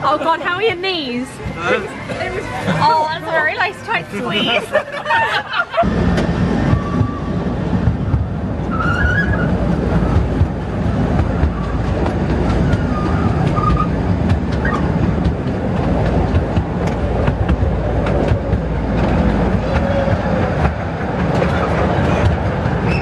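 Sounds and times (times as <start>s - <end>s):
ride train rumble: 0.0s - 23.0s
wheels clattering on track: 5.8s - 23.0s.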